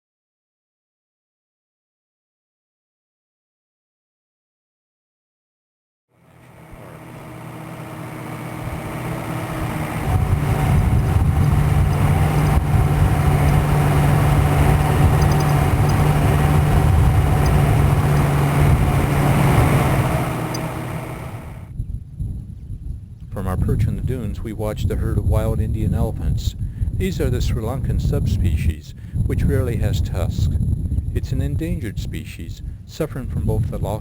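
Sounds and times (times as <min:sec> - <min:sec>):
vehicle engine humming: 0:06.2 - 0:21.7.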